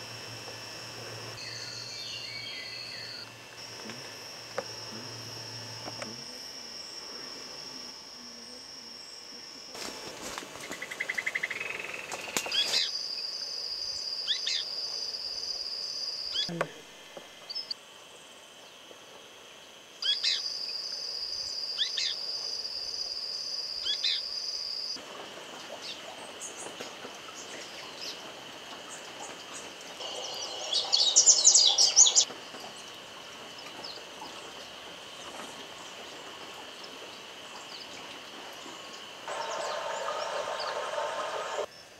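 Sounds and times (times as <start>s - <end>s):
high-pitched insect drone: 0.0s - 41.9s
bird chirps: 1.4s - 3.3s, 30.0s - 32.3s.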